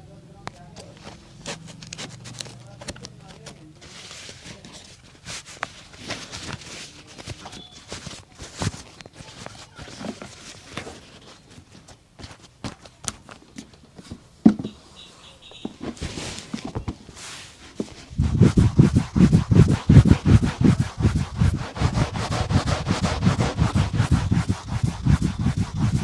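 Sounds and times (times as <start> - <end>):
brush sweeping a boot: 3.7 - 11.4, 14.7 - 26.0
taps and clicks on a boot: 12.6 - 14.8
fast loud rubbing strokes: 17.2 - 26.0.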